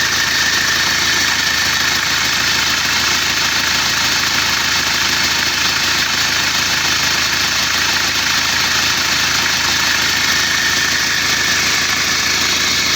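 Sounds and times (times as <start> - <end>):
diesel engine idling: 0.0 - 12.9.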